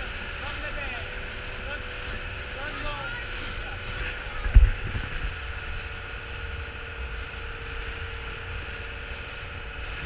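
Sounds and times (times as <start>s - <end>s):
speedboat engine whining: 0.0s - 10.0s
wind on microphone: 3.3s - 10.0s.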